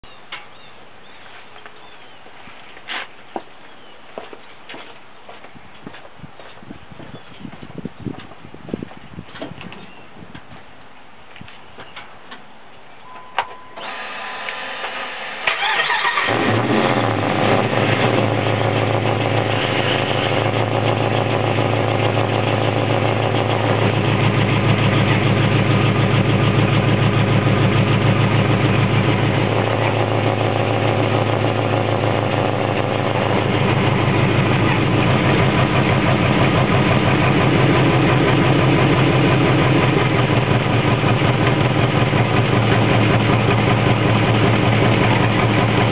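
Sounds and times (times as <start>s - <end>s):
engine idling: 13.8s - 45.9s
starter cranking engine: 14.9s - 17.3s.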